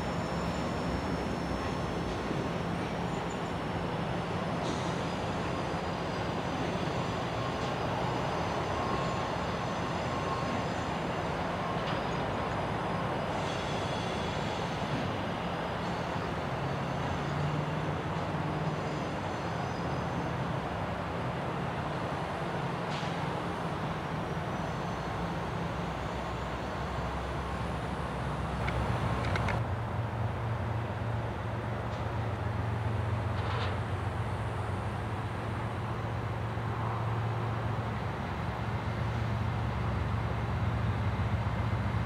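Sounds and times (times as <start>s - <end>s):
high-pitched wheel squeals: 0.0s - 3.6s
freight train wheels rumbling on rail: 0.0s - 42.0s.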